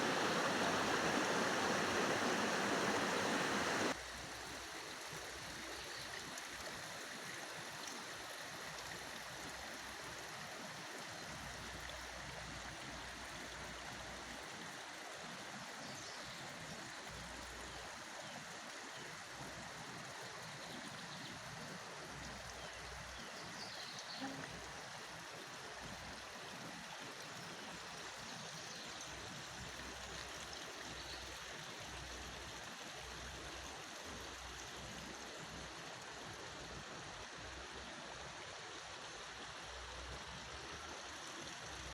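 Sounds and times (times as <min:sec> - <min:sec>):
stream rushing: 0:00.0 - 0:04.0.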